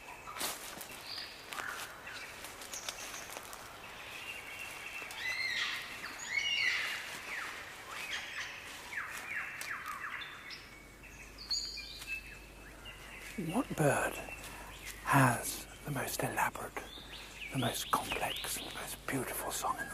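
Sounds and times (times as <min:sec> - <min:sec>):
birds whistling: 0:04.0 - 0:15.8.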